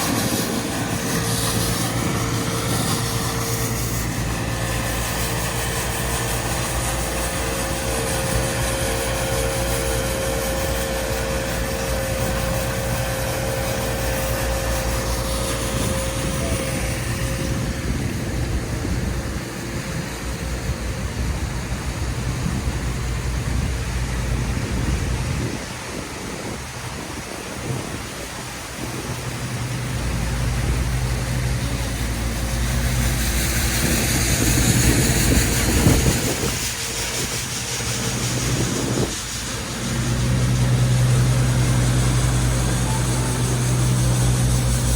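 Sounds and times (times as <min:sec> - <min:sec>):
vehicle engines in traffic: 0:37.4 - 0:44.9.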